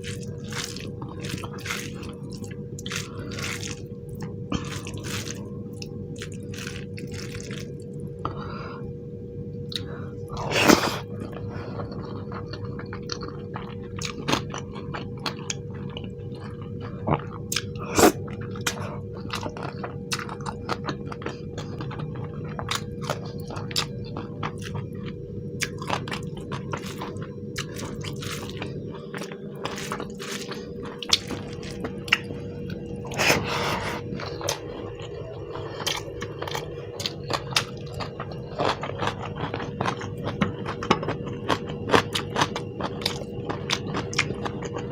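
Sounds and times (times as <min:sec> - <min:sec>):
chewing and biting: 0:00.0 - 0:08.0, 0:09.7 - 0:44.9
faint steady hum: 0:00.0 - 0:44.9.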